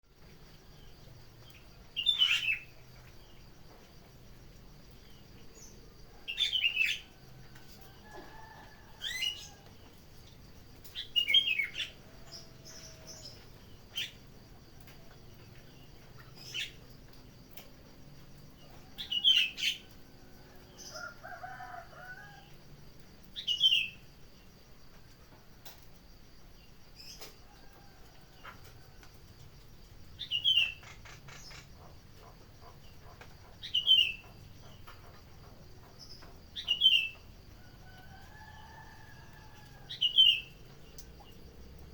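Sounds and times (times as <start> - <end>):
insect trill: 0.1 - 41.9
bird chirping: 0.4 - 3.8, 4.9 - 7.2, 10.8 - 17.7, 30.1 - 37.3, 38.5 - 41.9.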